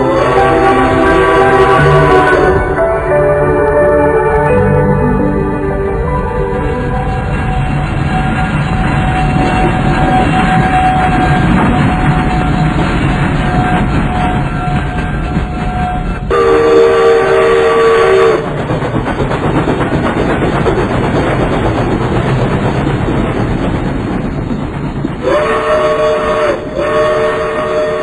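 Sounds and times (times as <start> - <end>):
train whistle blasts: 0.0 - 2.6, 15.7 - 18.4, 25.2 - 28.0
train wheels rumbling on track: 0.0 - 28.0.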